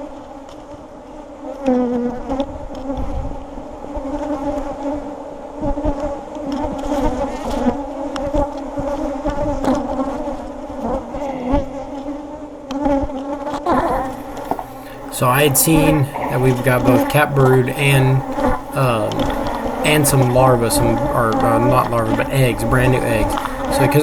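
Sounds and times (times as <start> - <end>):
bees buzzing: 13.7 - 24.0.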